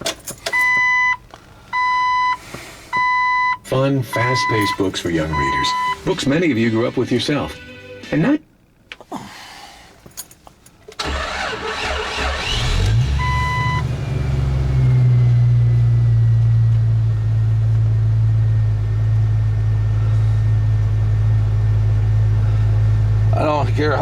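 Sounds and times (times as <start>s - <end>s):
car engine idling: 0.0s - 7.8s, 10.0s - 24.0s
short electronic beep: 4.2s - 6.2s
starter cranking: 11.0s - 13.1s.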